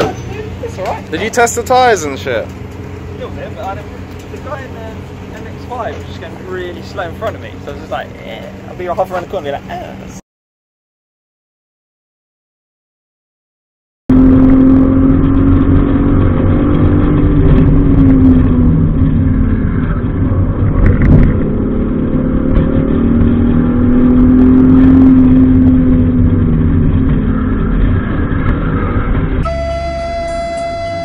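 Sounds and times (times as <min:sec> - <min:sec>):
car engine drone: 0:00.0 - 0:10.2, 0:14.1 - 0:31.0
road and wind noise: 0:00.0 - 0:10.2, 0:14.1 - 0:31.0.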